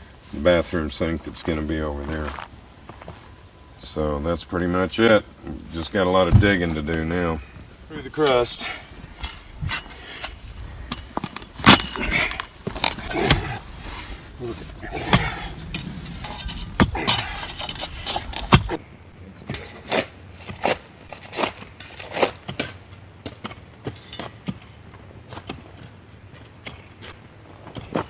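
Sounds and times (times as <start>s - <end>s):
digging tool striking soil: 9.2s - 14.0s, 19.5s - 28.0s.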